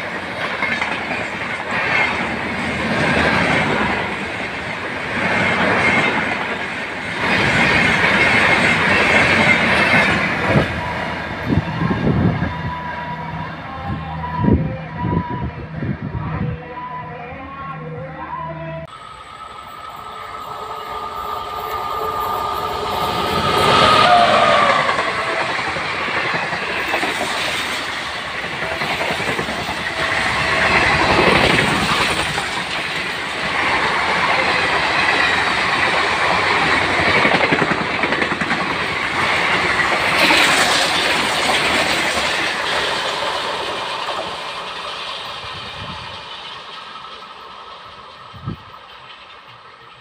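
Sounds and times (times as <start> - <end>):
train rumble and wheel clatter: 0.0 - 50.0
train horn: 16.4 - 25.9.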